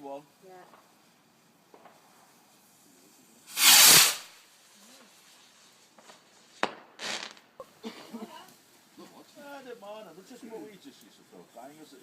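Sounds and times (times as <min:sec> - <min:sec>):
firework hissing: 0:00.0 - 0:12.0
firework sharp crack: 0:00.5 - 0:02.8, 0:03.4 - 0:05.0, 0:05.7 - 0:07.7.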